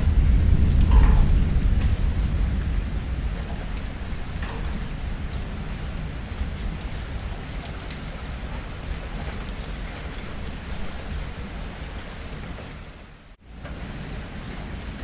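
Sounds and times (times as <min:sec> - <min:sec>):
deep low rumble: 0:00.0 - 0:08.6
steady rain: 0:00.0 - 0:15.0.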